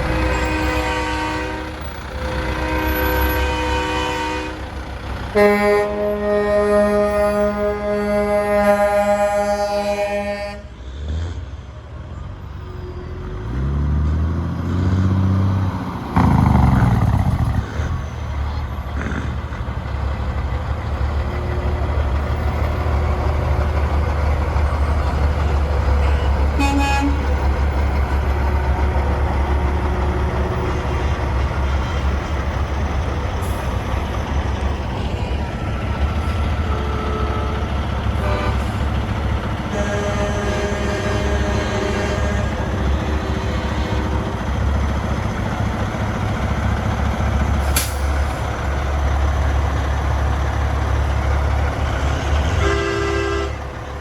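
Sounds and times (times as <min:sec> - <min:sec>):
truck horn blast: 0:00.0 - 0:10.8, 0:15.8 - 0:17.9, 0:25.4 - 0:32.8, 0:35.0 - 0:45.3, 0:51.8 - 0:54.0
diesel engine revving: 0:12.5 - 0:54.0.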